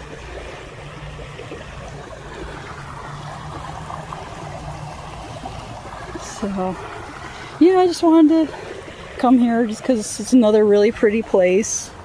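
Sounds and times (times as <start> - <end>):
stream babbling: 0.0 - 12.0.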